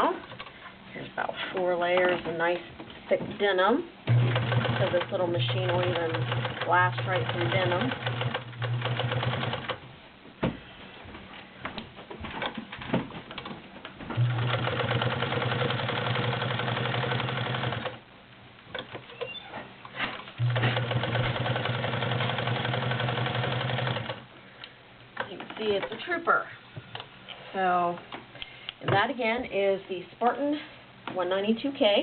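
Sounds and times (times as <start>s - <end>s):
sewing machine stitching: 4.1s - 9.8s, 14.2s - 18.0s, 20.1s - 24.2s.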